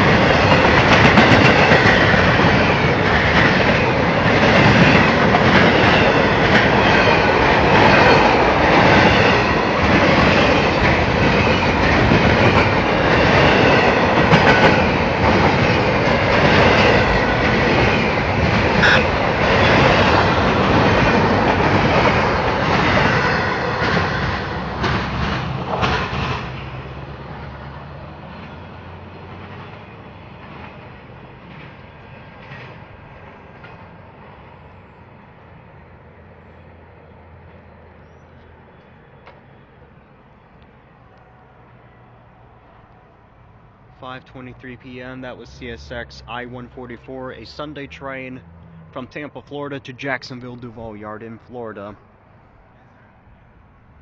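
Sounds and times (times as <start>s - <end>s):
freight train wheels clattering: 0.0s - 34.0s.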